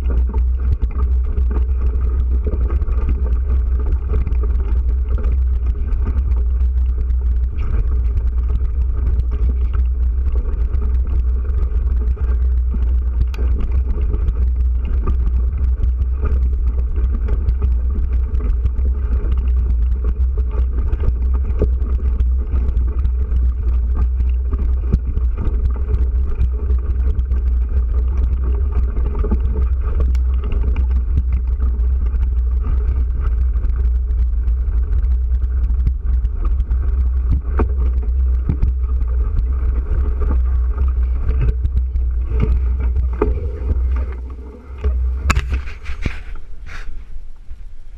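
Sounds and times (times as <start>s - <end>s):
road and riding noise: 0.0s - 47.9s
wind rumbling on microphone: 0.0s - 47.9s.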